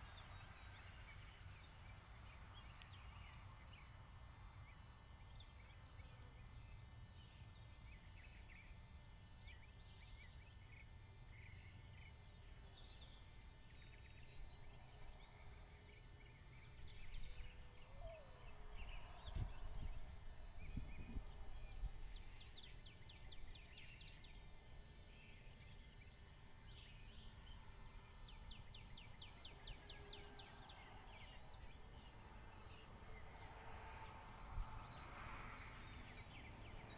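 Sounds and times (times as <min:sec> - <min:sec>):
low wind rumble on microphone: 0:16.7 - 0:24.7.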